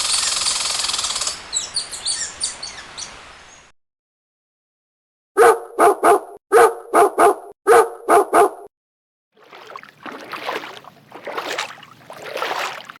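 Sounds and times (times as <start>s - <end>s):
dog barking: 5.4s - 8.7s.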